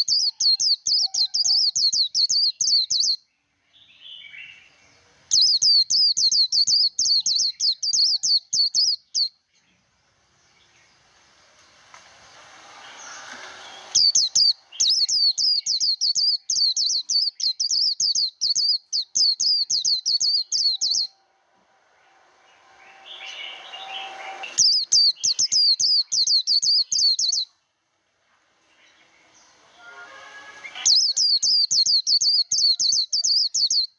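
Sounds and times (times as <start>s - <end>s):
bird chirping rapidly: 0.0s - 3.2s, 3.9s - 9.4s, 13.0s - 21.3s, 22.4s - 27.5s, 30.6s - 33.9s.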